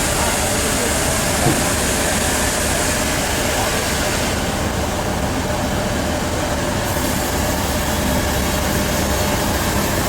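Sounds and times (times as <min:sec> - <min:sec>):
sawmill machinery rumble: 0:00.0 - 0:10.0.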